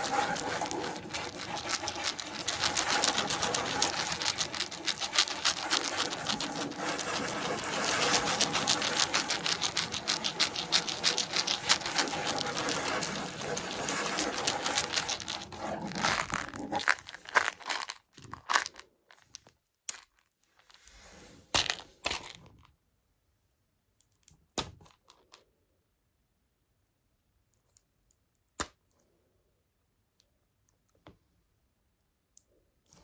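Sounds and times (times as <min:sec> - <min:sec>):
pellets rattling: 0:00.0 - 0:18.8.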